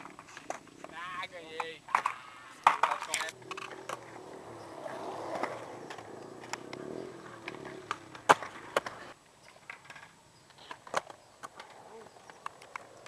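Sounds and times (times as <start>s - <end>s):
skateboard wheels rolling on pavement: 0.0s - 13.0s
skateboard wooden clacks: 0.0s - 13.0s.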